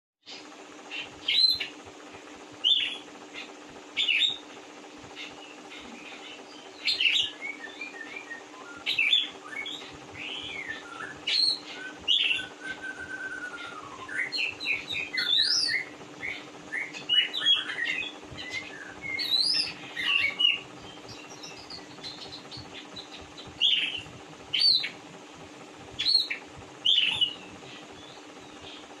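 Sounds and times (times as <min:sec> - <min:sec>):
steady low hum: 0:00.3 - 0:29.0
bird whistling and warbling: 0:05.7 - 0:25.0, 0:26.0 - 0:28.8.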